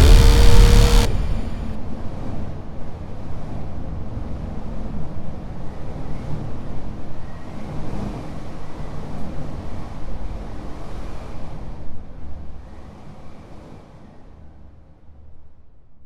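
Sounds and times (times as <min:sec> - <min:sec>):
motorcycle engine rumble: 0:00.0 - 0:01.8.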